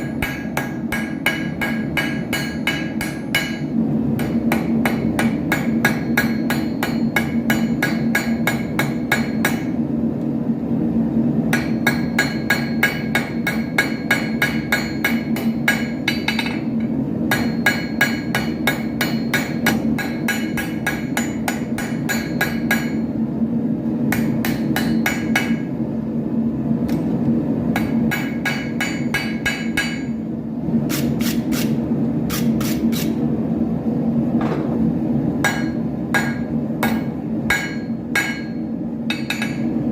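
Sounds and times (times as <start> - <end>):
hammer ringing on anvil: 0.0 - 9.8, 11.5 - 23.1, 24.1 - 25.7, 27.8 - 30.2, 35.4 - 39.8
steady low hum: 0.0 - 39.9.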